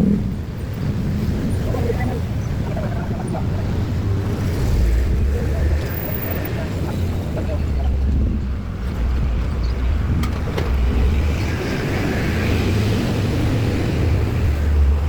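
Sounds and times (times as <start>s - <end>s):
rumble of passing vehicles: 0.0s - 15.0s.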